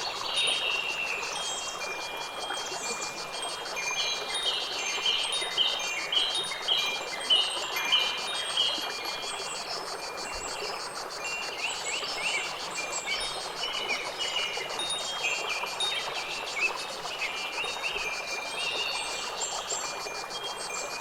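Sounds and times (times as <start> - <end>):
high insect trill: 0.0 - 21.0.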